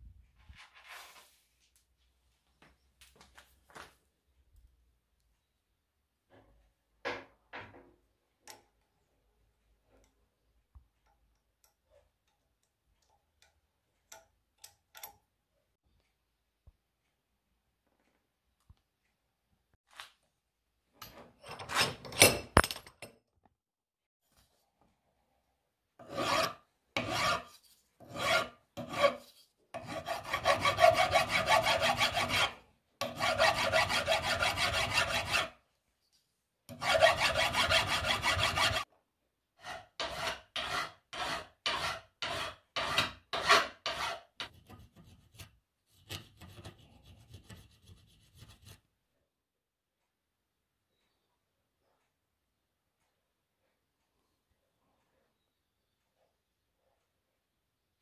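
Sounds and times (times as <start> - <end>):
file scraping steel cable: 26.0 - 35.6, 36.7 - 38.9, 39.6 - 48.8.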